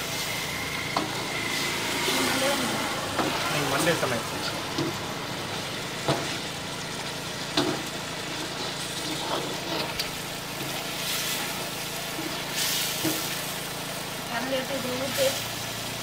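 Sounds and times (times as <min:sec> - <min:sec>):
food sizzling in a pan: 0:00.0 - 0:16.0
metal ladle scraping pan: 0:07.6 - 0:13.3.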